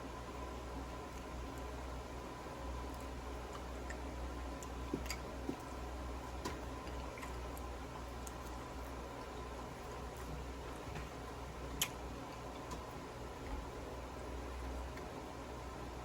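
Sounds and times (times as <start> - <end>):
steady low hum: 0.0 - 16.0
chewing: 2.8 - 13.8.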